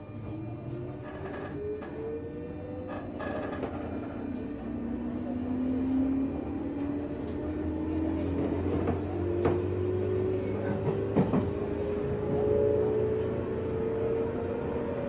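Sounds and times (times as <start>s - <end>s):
electric train motor tone rising: 0.0s - 9.9s.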